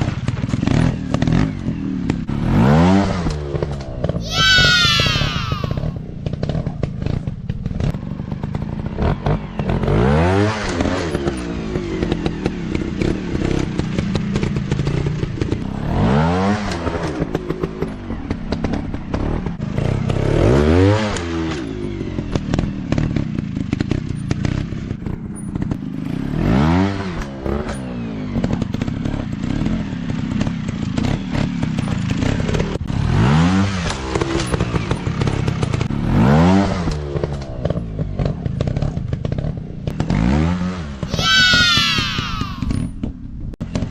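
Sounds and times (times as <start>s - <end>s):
dirt bike engines revving: 0.5s - 7.8s, 40.0s - 42.8s.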